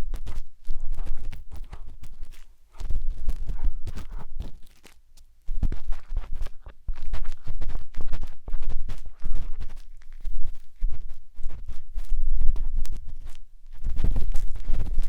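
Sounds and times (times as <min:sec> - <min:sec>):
tool scratching inside microphone ear: 0:00.0 - 0:15.0.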